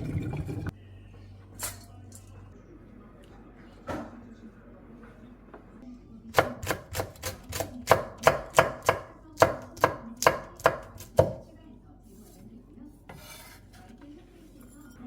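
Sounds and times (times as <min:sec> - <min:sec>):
knife chopping on cutting board: 0:06.4 - 0:11.4.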